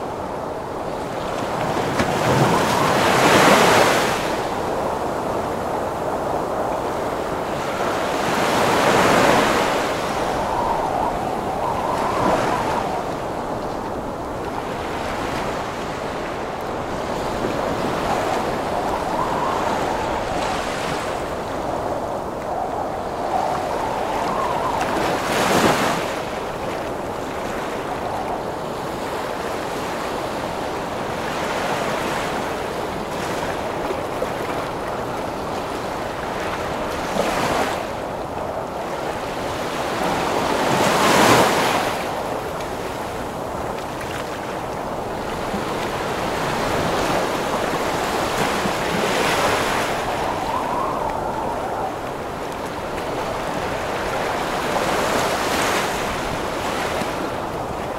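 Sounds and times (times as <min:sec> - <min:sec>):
ocean waves crashing: 0:00.0 - 0:57.9
storm wind rushing: 0:01.8 - 0:30.2, 0:44.6 - 0:57.9.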